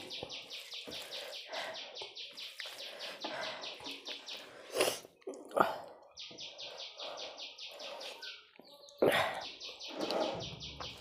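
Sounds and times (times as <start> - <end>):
bird chirping rapidly: 0.0 - 4.6.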